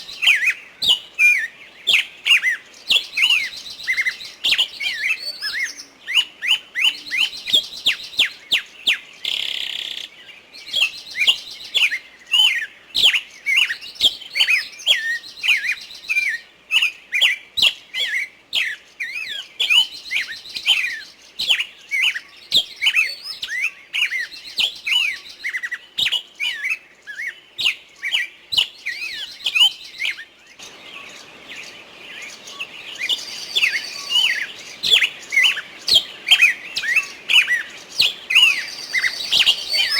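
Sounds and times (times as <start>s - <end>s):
small birds chirping: 0.0s - 39.9s
buzzy bird chatter: 29.0s - 39.9s.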